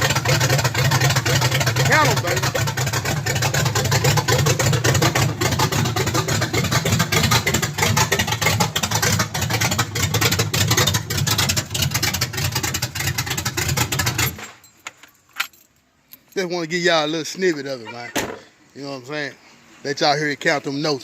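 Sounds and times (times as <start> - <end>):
pickup engine idling: 0.0 - 14.4.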